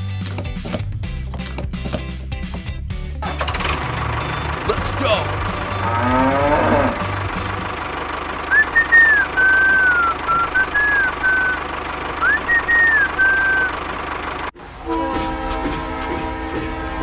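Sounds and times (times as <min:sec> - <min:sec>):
tractor engine running: 0:00.1 - 0:14.8
person whistling a tune: 0:08.4 - 0:11.6, 0:12.2 - 0:13.8.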